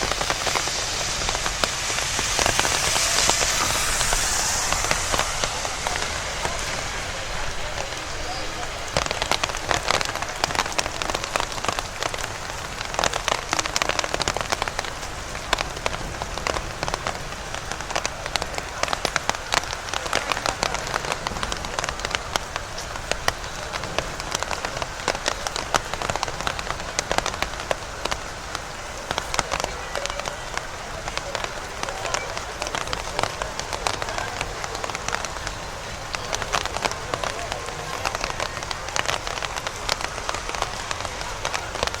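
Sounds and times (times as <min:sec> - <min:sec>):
steady rain falling: 0:00.0 - 0:42.0.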